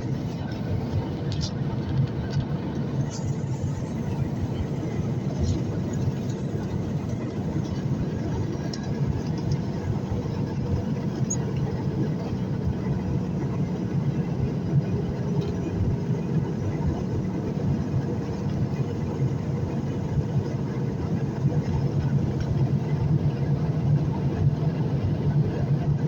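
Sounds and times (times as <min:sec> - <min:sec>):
airliner cabin engine rumble: 0:00.0 - 0:26.0.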